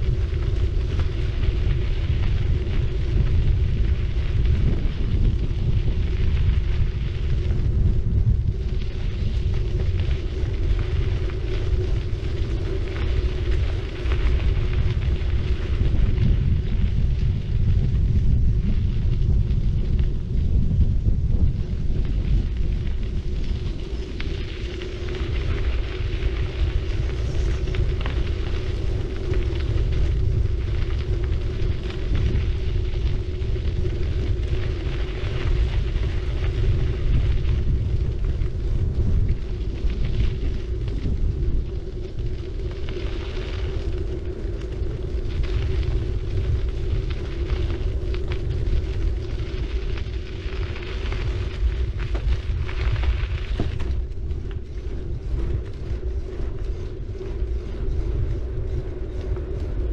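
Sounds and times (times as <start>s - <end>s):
bicycle tyre noise on road: 0.0s - 59.9s
steady low hum: 0.0s - 59.9s
wind buffeting microphone: 0.0s - 59.9s.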